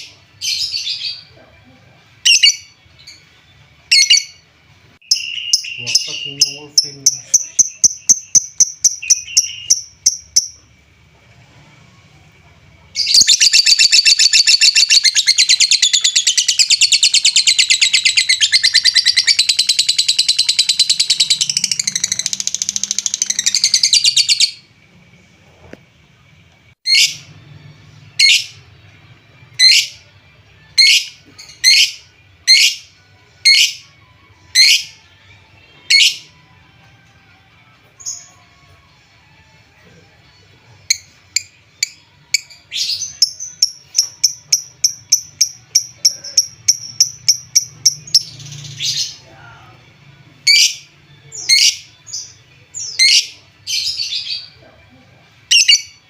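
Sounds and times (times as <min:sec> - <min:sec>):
bird sharp high chirps: 0:05.0 - 0:10.6, 0:13.0 - 0:24.6
bird chattering trill: 0:13.0 - 0:24.6.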